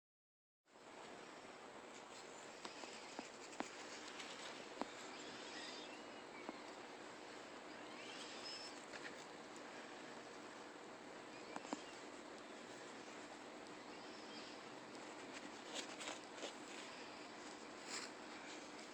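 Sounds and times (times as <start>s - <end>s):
outdoor background hiss: 0.7s - 18.9s
faint high chirps: 4.8s - 6.8s, 7.6s - 8.8s, 11.2s - 12.9s.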